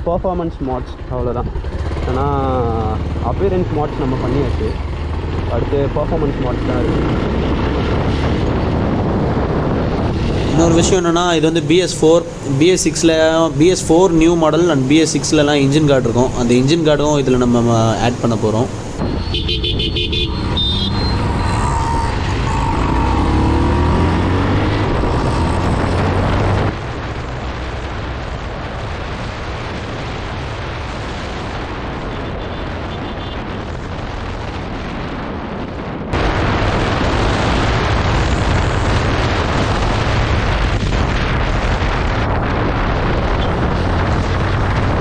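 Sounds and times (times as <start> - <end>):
motorcycle engine running: 0.9 - 8.9
wind buffeting microphone: 4.5 - 45.0.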